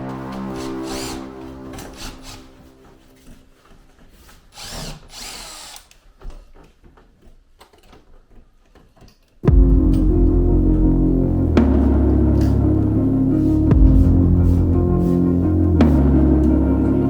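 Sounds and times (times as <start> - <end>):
power drill whine: 0.0 - 2.6, 4.6 - 6.0
loud music: 0.0 - 3.0, 9.4 - 17.0.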